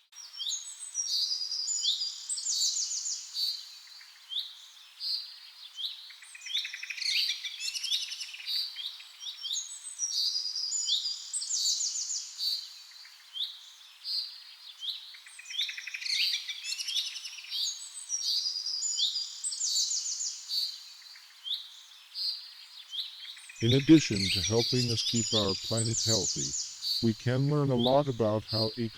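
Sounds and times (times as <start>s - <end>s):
chorus of bird calls: 14.5s - 28.9s
faint steady hiss: 17.7s - 28.9s.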